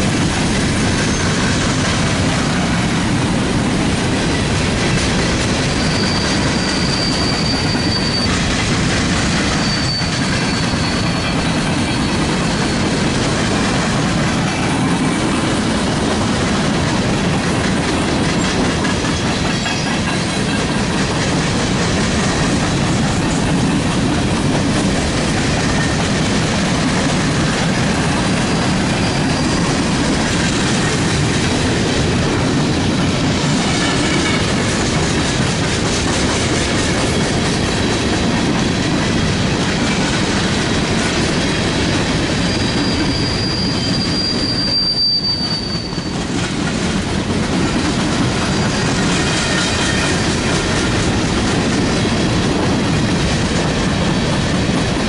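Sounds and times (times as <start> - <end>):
freight train wheels rumbling: 0.0 - 55.0
high wheel squeals: 0.8 - 1.6, 5.6 - 8.6, 9.4 - 13.4, 28.2 - 30.0, 42.3 - 46.4.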